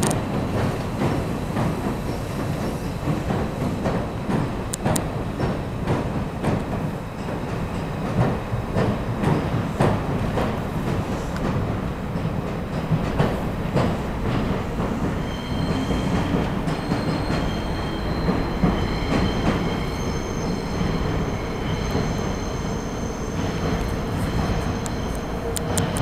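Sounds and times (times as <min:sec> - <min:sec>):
train rumbling across bridge: 0:00.0 - 0:26.0
high-pitched wheel squeal: 0:15.2 - 0:25.3.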